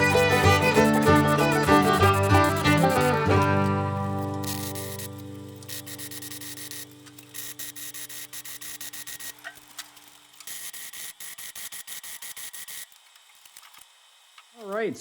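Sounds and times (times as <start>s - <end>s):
fiddle tune: 0.0s - 6.1s
welding crackling and hissing: 0.0s - 15.0s.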